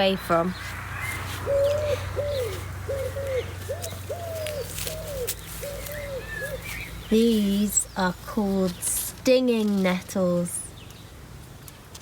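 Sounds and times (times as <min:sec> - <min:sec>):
pigeon cooing: 0:01.0 - 0:07.6.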